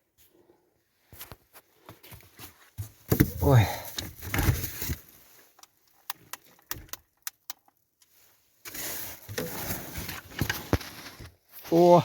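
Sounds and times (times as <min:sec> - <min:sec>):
handling clicks and knocks: 0:02.8 - 0:08.1.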